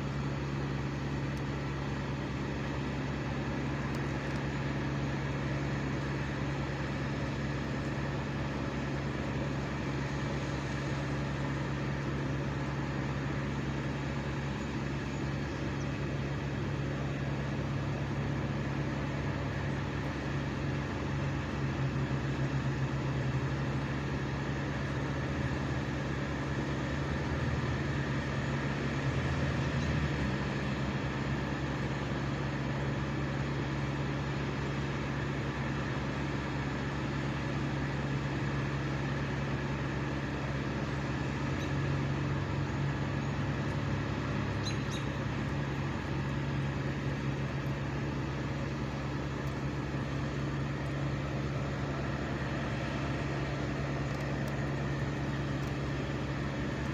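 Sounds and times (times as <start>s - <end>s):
engine running at high speed: 0.0s - 56.9s.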